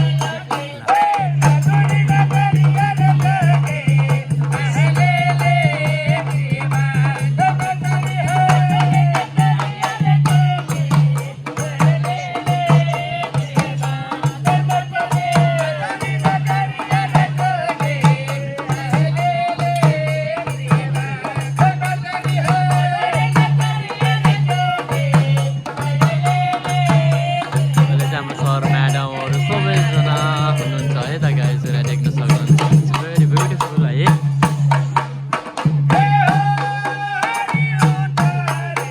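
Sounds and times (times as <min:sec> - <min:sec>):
fast rhythmic percussion: 0:00.0 - 0:38.9
person singing: 0:22.0 - 0:33.8.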